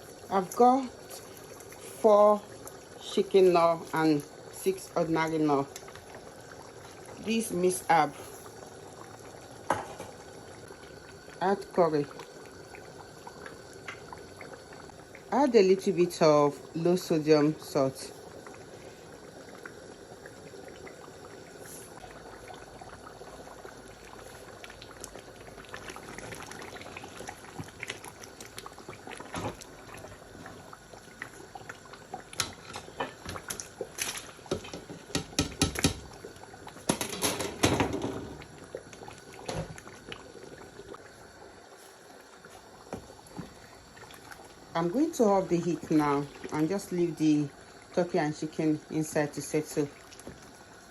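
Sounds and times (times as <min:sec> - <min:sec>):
stew bubbling: 0:00.0 - 0:50.9
utensil knocking and scraping pot: 0:34.5 - 0:36.0.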